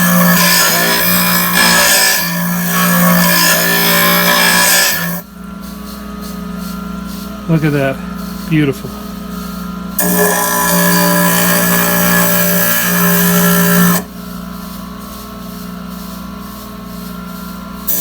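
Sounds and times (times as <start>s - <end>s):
glass grinding: 0.0s - 5.2s, 8.5s - 14.1s
grinder motor hum: 0.0s - 18.0s.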